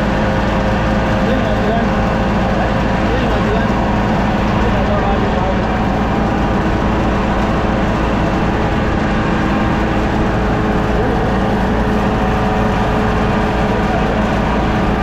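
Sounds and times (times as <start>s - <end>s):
farm machine engine droning: 0.0s - 15.0s.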